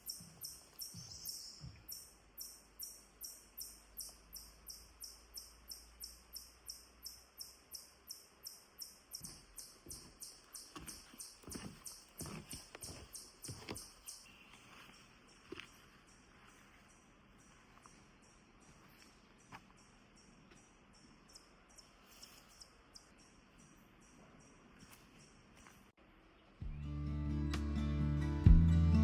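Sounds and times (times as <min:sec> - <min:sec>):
insect chirping: 0:00.0 - 0:25.8
footsteps: 0:09.2 - 0:19.8.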